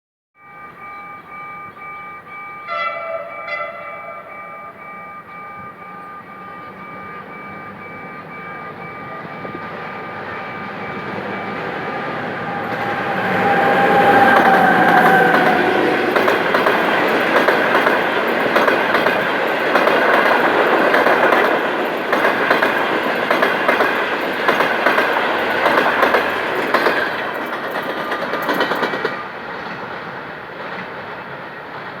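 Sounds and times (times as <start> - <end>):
diesel locomotive passing: 0.4 - 32.0
train wheels clattering on rail joints: 7.0 - 32.0.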